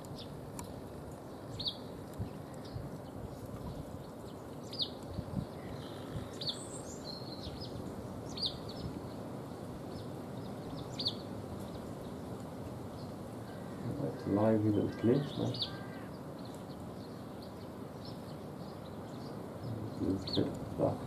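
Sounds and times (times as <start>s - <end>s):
small songbirds chirping: 0.0s - 21.0s
bird trill: 10.0s - 11.3s, 12.9s - 21.0s.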